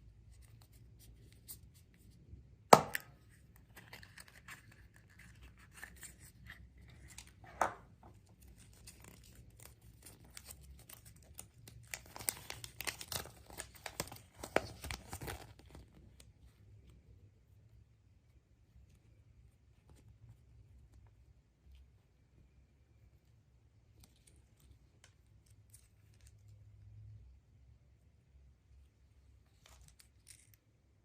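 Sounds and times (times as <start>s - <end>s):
packaging crinkling: 8.2s - 16.0s.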